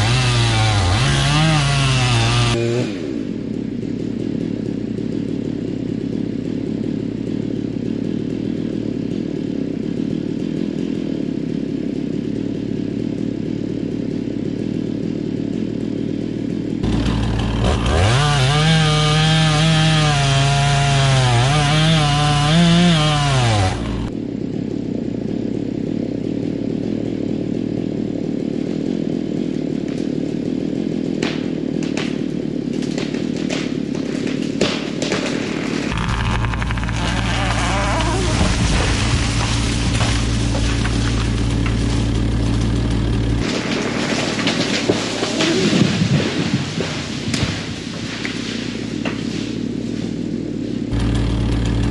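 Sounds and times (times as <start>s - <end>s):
chainsaw cutting at full throttle: 0.0s - 51.9s
sharp cracks: 31.2s - 49.6s
engine idling: 35.9s - 45.2s, 48.2s - 51.9s.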